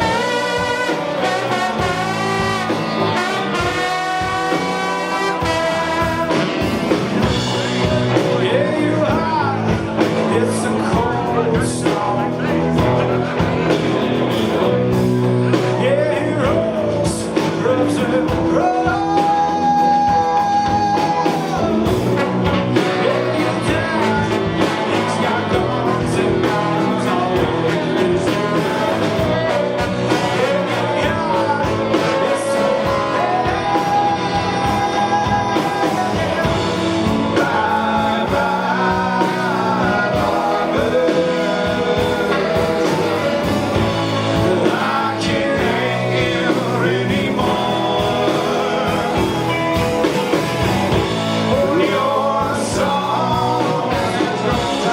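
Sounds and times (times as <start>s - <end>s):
live rock band playing: 0.0s - 54.9s.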